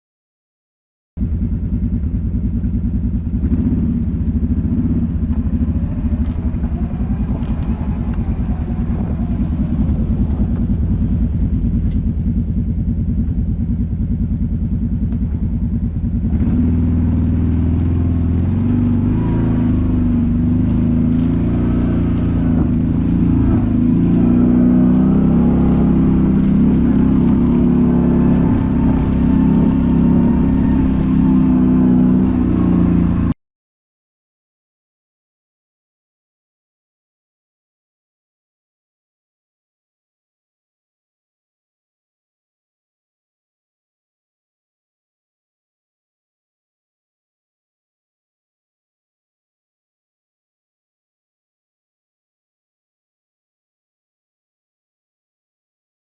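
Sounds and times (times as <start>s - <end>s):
quad engine running: 1.2s - 33.4s.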